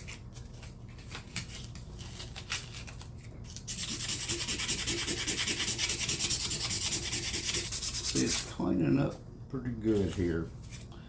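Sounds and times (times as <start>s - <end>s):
blade rasping on sandpaper: 3.7s - 8.4s.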